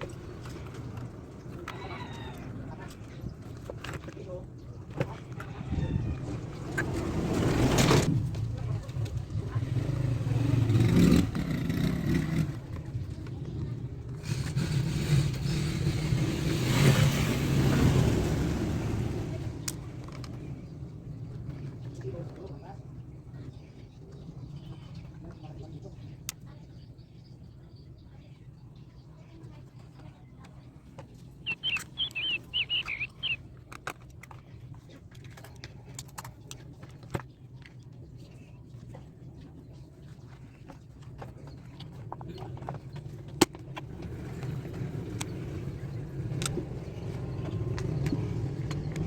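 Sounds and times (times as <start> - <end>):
bird warbling chirps: 31.4 - 33.4
motor vehicle passing: 31.4 - 33.4.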